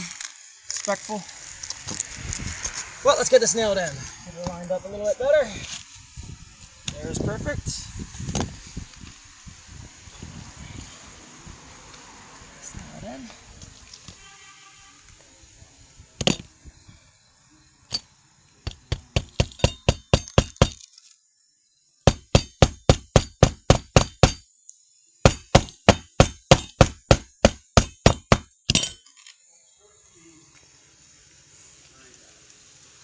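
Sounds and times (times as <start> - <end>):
hammer striking roofing nails: 18.7 - 20.8, 22.1 - 24.4, 25.3 - 28.9.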